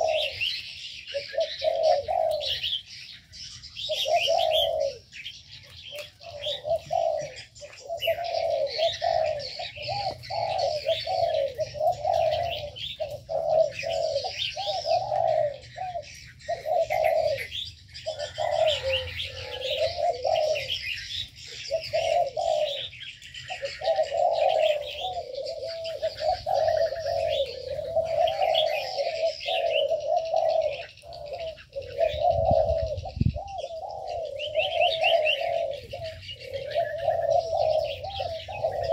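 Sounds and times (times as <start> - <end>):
doves cooing: 0.0 - 38.9
small birds chirping: 0.0 - 38.9.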